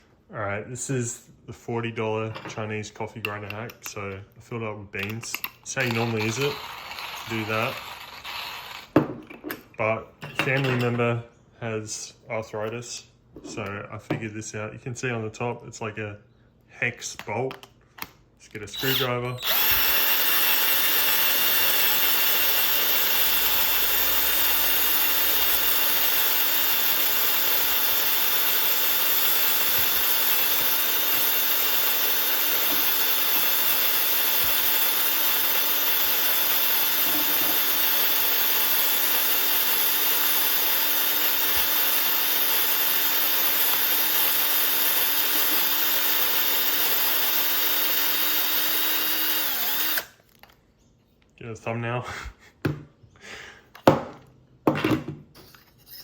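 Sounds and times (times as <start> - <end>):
burrs grinding coffee beans: 5.7 - 9.0, 18.7 - 50.1
power drill running: 5.8 - 9.0, 18.7 - 50.2.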